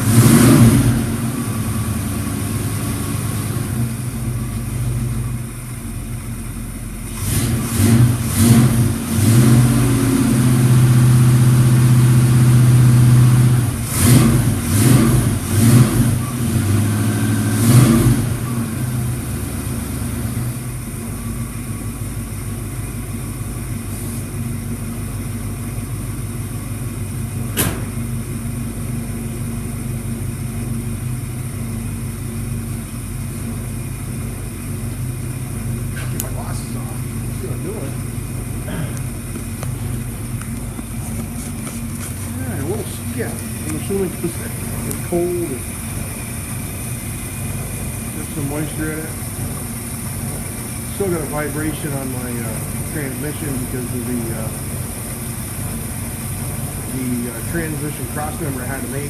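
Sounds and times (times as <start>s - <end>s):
car engine revving and idling: 0.0s - 59.0s
sharp click: 27.5s - 28.0s.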